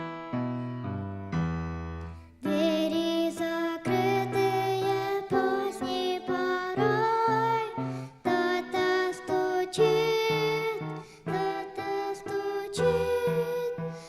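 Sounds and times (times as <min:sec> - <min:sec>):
instrumental accompaniment: 0:00.0 - 0:02.7
woman singing: 0:02.4 - 0:14.0.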